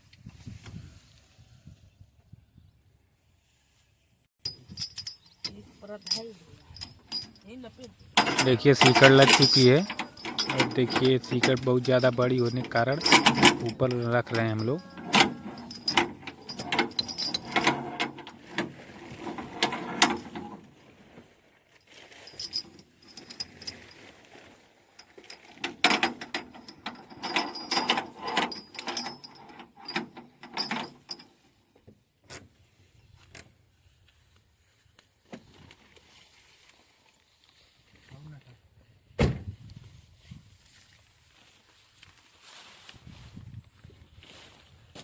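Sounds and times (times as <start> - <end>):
steel chain clinking and rattling: 4.4 - 20.6, 22.1 - 24.2, 25.0 - 31.6.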